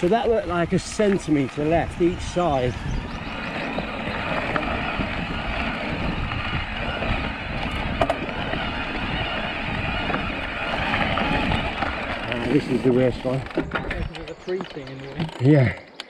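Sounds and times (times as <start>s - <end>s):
wind buffeting microphone: 0.0s - 15.4s
bike tyre rumble on dirt: 0.0s - 15.6s.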